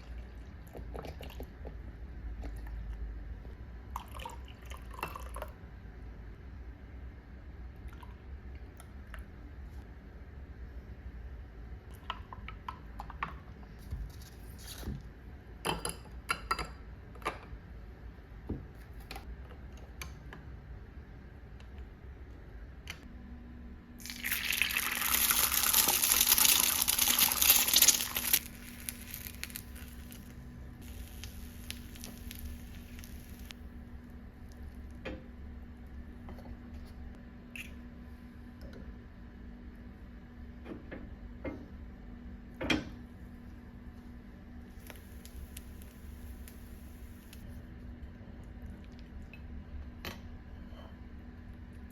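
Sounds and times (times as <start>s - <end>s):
steady low hum: 25.4s - 51.9s.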